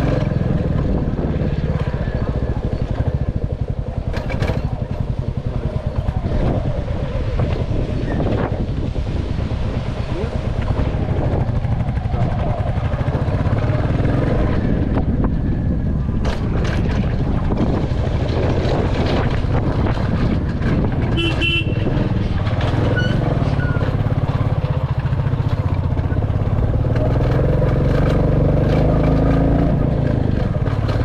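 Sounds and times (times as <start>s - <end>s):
motorcycle engine running: 0.0s - 31.0s
horn toot: 21.1s - 22.0s.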